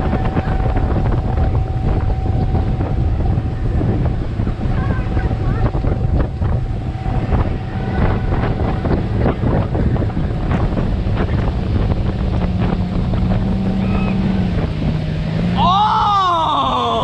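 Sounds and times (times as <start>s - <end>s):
motorboat engine running: 0.0s - 17.0s
rushing water: 0.0s - 17.0s
wind buffeting microphone: 0.0s - 17.0s
loud high rising cry: 15.6s - 17.0s.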